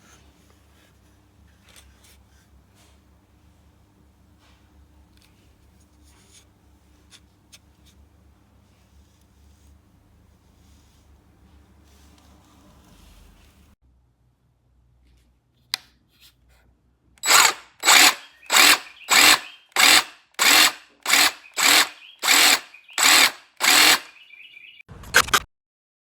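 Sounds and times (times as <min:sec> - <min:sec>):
jigsaw motor bursts: 0:17.2 - 0:24.2
sharp click: 0:24.9 - 0:25.5.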